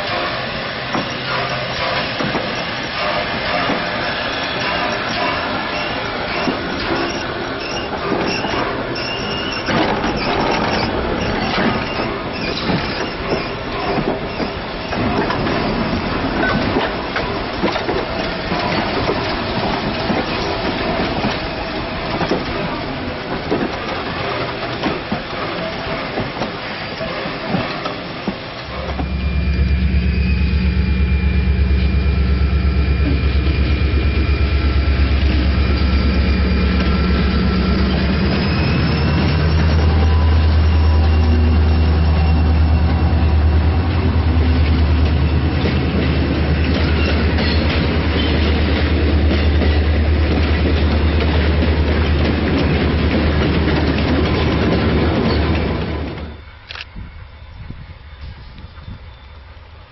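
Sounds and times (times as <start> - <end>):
train wheels clacking over rail joints: 0.0 - 29.1, 44.3 - 56.4
diesel locomotive engine rumble: 0.0 - 59.9.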